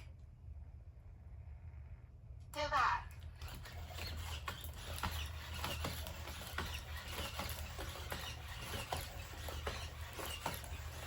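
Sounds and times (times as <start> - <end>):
steady low hum: 0.0 - 11.0
robot dog feet tapping and clicking: 3.1 - 11.0.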